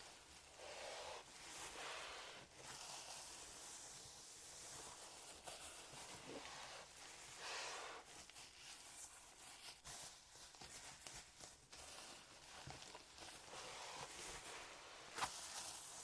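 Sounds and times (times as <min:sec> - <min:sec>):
hands rustling: 0:04.6 - 0:16.0.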